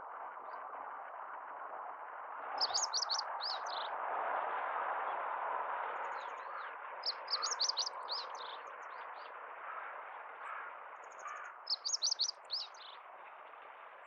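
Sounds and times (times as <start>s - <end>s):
bird singing high sweet notes: 2.6s - 3.8s, 7.0s - 8.2s, 11.7s - 12.8s.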